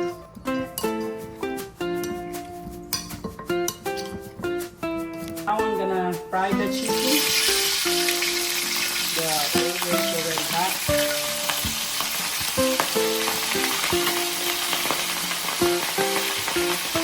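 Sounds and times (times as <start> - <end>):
background music: 0.0 - 17.0
chicken frying in hot oil: 6.7 - 17.0.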